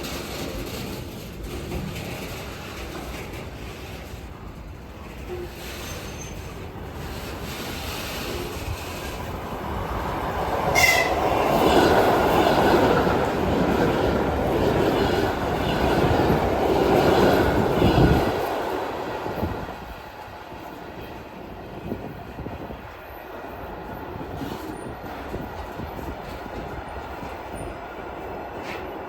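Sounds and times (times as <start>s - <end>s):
freight train wagons rolling: 0.0s - 29.0s.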